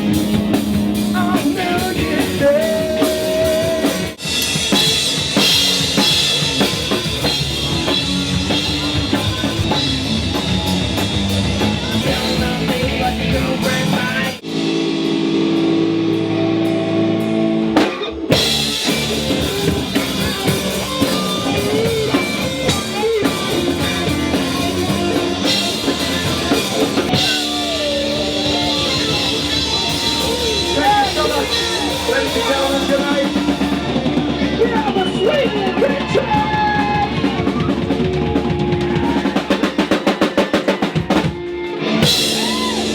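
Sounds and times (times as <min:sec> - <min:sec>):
rock band playing: 0:00.0 - 0:42.9
guitar chords ringing: 0:14.4 - 0:35.2.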